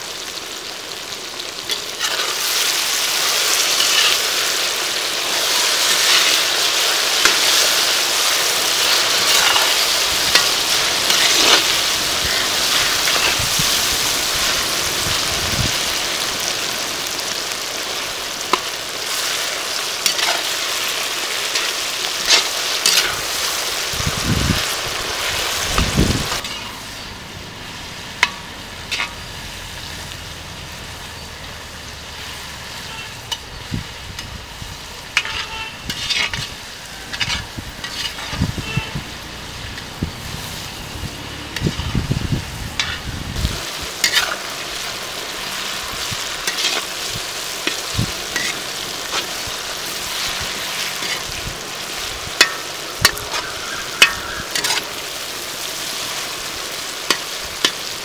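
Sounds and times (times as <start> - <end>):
vegetables sizzling in oil: 0.0 - 58.0
spoon scraping a pan: 1.7 - 2.5, 3.7 - 4.3, 8.9 - 13.7, 20.0 - 20.5, 21.4 - 23.4, 28.2 - 29.2, 35.1 - 39.0, 42.8 - 43.1, 44.0 - 44.5, 46.4 - 49.4, 50.1 - 51.4, 52.4 - 55.0.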